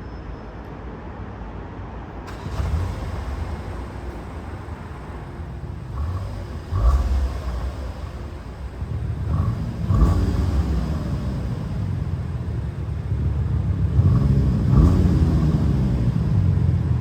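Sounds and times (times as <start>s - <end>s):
car engine and exhaust rumbling: 2.2s - 17.0s.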